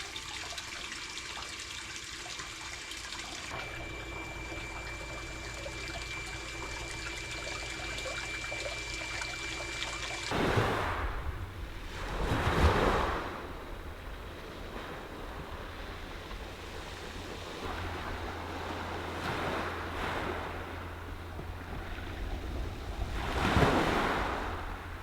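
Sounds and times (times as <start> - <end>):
water trickling: 0.0 - 11.0
sea waves washing onto shore: 9.6 - 25.0.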